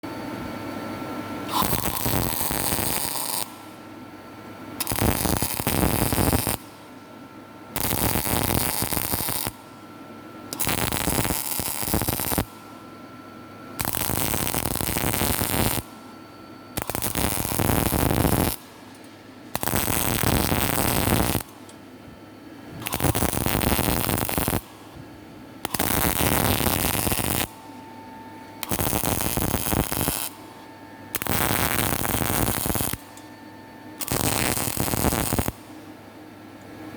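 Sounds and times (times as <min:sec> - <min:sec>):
arc welding crackling: 0:01.5 - 0:03.9, 0:04.8 - 0:07.0, 0:07.7 - 0:09.8, 0:10.5 - 0:12.7, 0:13.8 - 0:16.0, 0:16.8 - 0:21.8, 0:22.7 - 0:25.0, 0:25.6 - 0:27.9, 0:28.5 - 0:33.3, 0:33.9 - 0:36.0.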